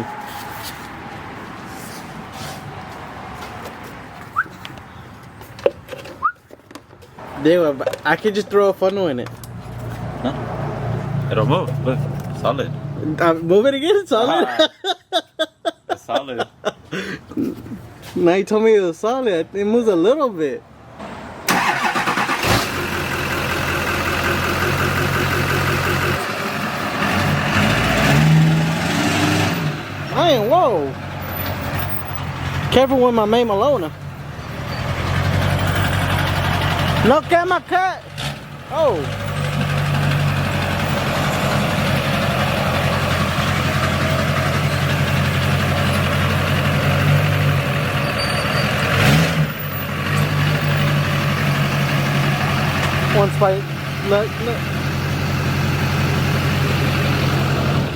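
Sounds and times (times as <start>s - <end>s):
truck engine idling: 21.5s - 27.2s, 29.9s - 57.9s.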